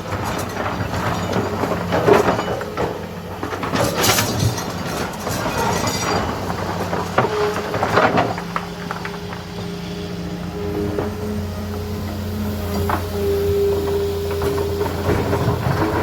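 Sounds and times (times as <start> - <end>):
diesel engine running: 0.0 - 16.0
clattering and scraping: 0.1 - 9.5, 12.7 - 16.0.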